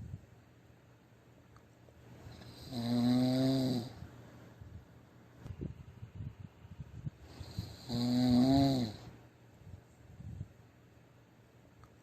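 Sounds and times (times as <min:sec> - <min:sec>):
loud snore: 0:02.5 - 0:04.0, 0:07.4 - 0:09.1
breathing hiss: 0:07.2 - 0:09.1.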